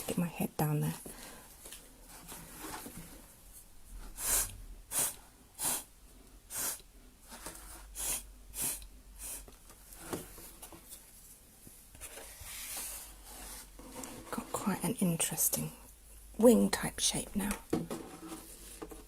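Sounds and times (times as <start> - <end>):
breath blown through a straw: 4.2 - 5.9.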